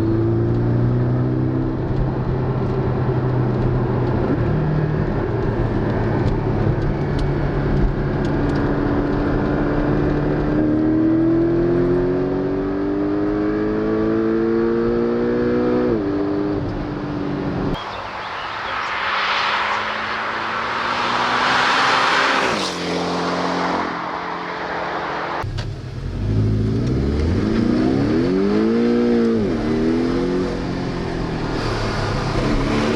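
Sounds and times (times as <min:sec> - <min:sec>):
car engine accelerating: 0:17.5 - 0:32.9.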